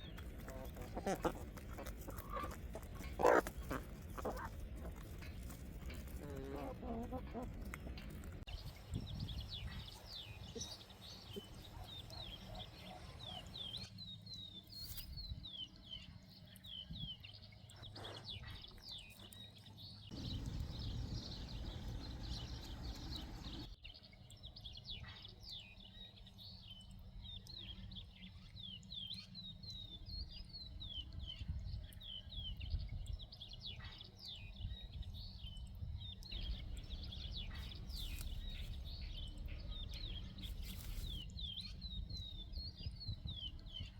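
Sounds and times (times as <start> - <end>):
small birds chirping: 0.0 - 43.9
low rumble: 20.2 - 23.7.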